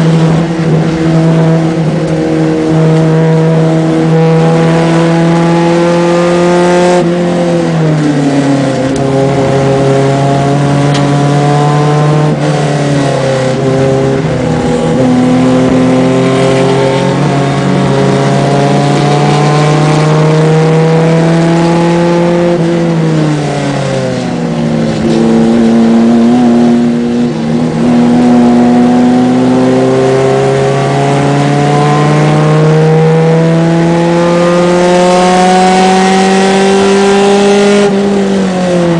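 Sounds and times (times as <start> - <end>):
race car engine under load: 0.0 - 38.9
road and wind noise: 0.0 - 38.9.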